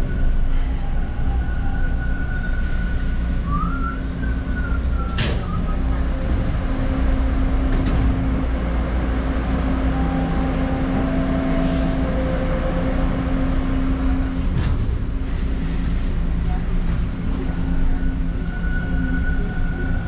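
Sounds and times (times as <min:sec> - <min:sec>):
subway train rumble: 0:00.0 - 0:20.0
brief high squeal: 0:11.6 - 0:12.2.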